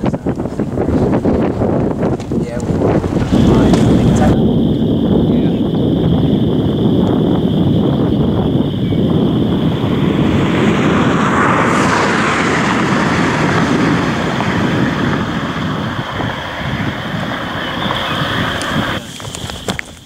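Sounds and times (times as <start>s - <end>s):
car road noise rumble: 0.0s - 20.0s
wind hiss: 0.0s - 20.0s.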